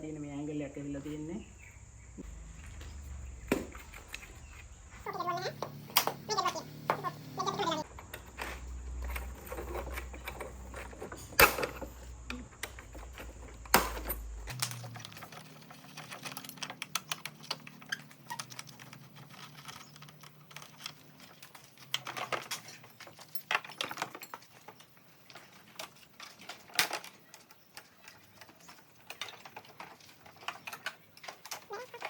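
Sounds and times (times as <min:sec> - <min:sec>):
low hum: 0:01.7 - 0:05.1.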